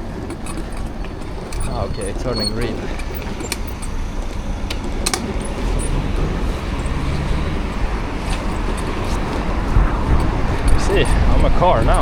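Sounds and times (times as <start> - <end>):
clicks and rattles: 0.0 - 12.0
passing vehicles roaring: 0.0 - 12.0
wind on microphone: 5.5 - 12.0.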